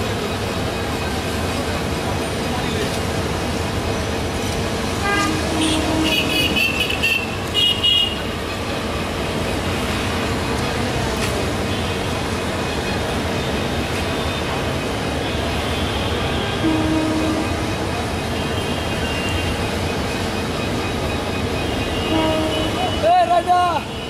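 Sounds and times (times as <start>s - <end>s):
train coaches rolling over points: 0.0s - 23.9s
diesel locomotive engine: 0.0s - 24.0s.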